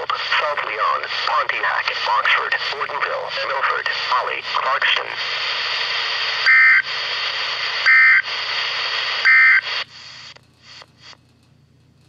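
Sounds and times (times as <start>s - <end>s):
radio hiss: 0.0s - 11.2s.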